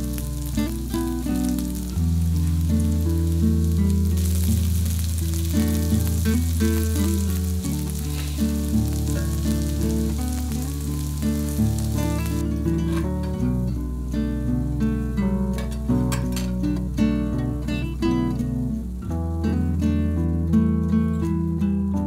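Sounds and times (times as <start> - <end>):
pancakes sizzling in oil: 0.0 - 13.6.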